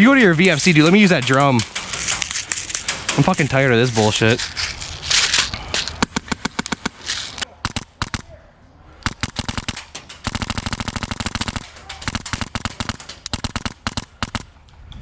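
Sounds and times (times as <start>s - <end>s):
airsoft rifle full-auto bursts: 6.0s - 8.4s, 9.0s - 14.6s
airsoft rifle single shots: 6.0s - 8.4s, 9.0s - 14.6s.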